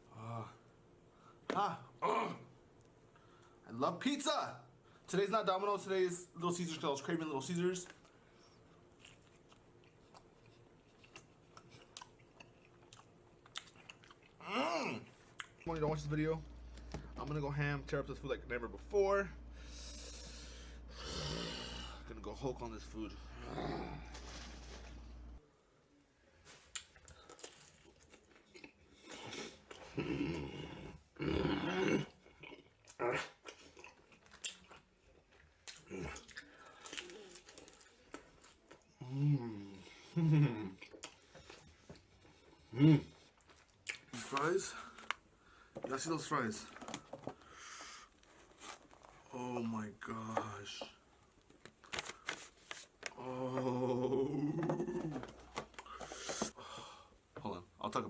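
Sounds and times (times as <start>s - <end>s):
person grunting: 2.0s - 2.5s, 14.4s - 15.1s, 23.1s - 24.2s, 53.2s - 55.3s
chewing pizza: 7.6s - 15.9s, 26.5s - 45.7s
crunchy chewing: 8.9s - 14.4s, 32.2s - 38.9s.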